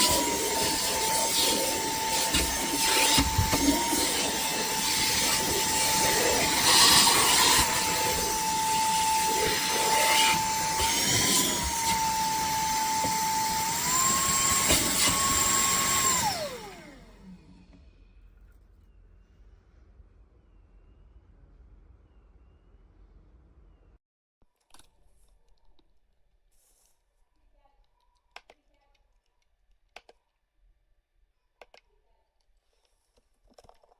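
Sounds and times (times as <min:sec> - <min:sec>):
handheld vacuum cleaner whining: 0:00.0 - 0:17.8.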